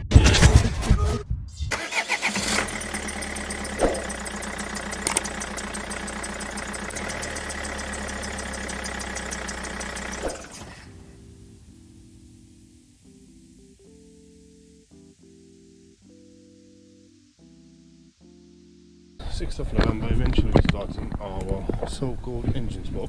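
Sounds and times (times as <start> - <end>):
van engine starting and idling: 1.7 - 11.8.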